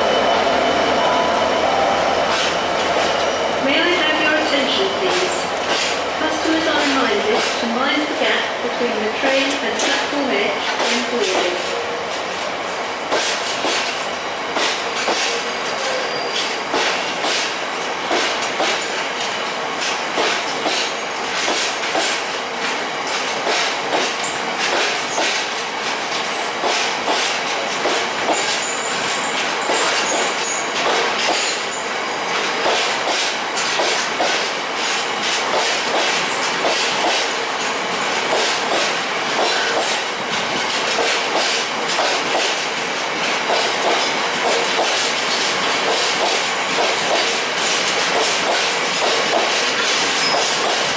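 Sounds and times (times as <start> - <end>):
train wheels clickety-clack: 2.2 - 50.9
faint high wheel squeal: 15.4 - 16.6, 28.6 - 30.7, 50.1 - 50.6.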